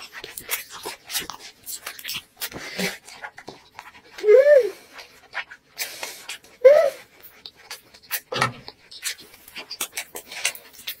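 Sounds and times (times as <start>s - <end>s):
wet chewing and lip-smacking: 0.0s - 11.0s
breath through the nose: 2.4s - 3.1s, 5.8s - 6.4s, 10.0s - 10.9s.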